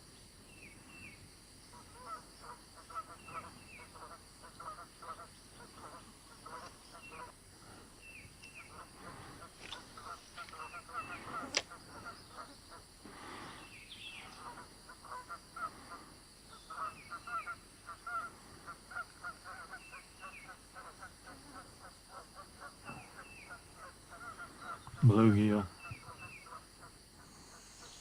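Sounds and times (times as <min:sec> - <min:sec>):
birds calling: 0:00.0 - 0:28.0.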